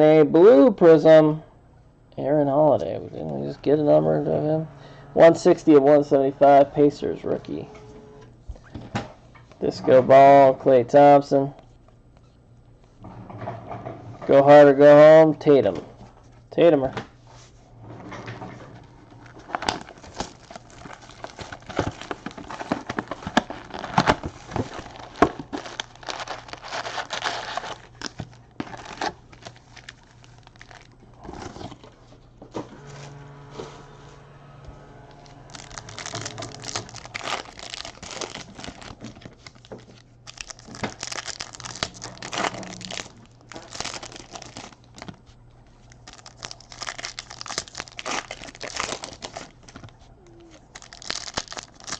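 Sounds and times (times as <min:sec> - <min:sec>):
card pack wrappers crinkling and tearing: 0:19.2 - 0:32.0, 0:35.2 - 0:51.9
cards crackling and clicking: 0:19.4 - 0:31.0, 0:35.5 - 0:45.2, 0:45.9 - 0:51.9.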